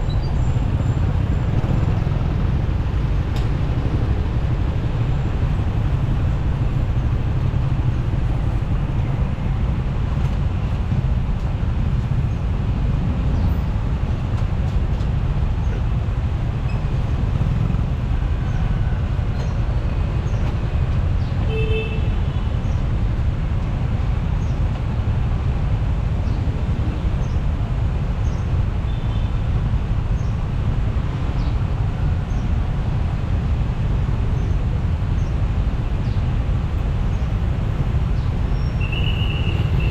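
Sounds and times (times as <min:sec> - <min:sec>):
motorcycle engine and road noise: 0:00.0 - 0:39.9
vehicle horn toot: 0:38.8 - 0:39.9.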